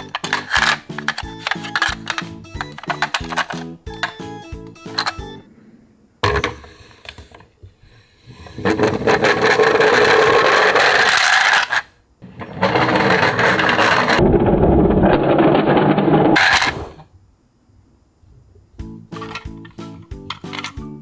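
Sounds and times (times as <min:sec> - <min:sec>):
toy wheels rolling on wooden boards: 0:00.0 - 0:05.3, 0:08.4 - 0:14.2, 0:15.1 - 0:17.1, 0:19.2 - 0:20.8.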